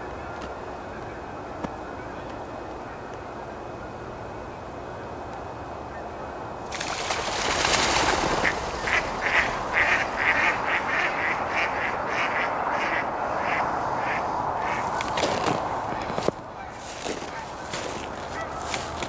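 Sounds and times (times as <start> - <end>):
broad rushing noise: 2.4 - 19.0
ducks quacking: 7.0 - 19.0.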